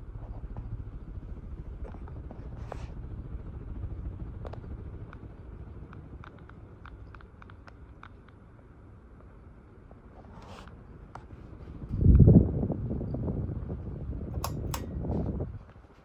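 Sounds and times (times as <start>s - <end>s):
ceiling fan rumble: 0.0s - 16.0s
light ticks and clicks: 14.4s - 14.9s.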